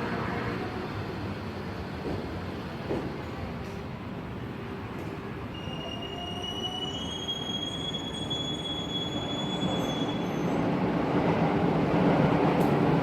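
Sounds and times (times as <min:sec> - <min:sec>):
train rumble: 0:00.0 - 0:06.7, 0:08.2 - 0:13.0
high wheel squeal: 0:05.5 - 0:10.6.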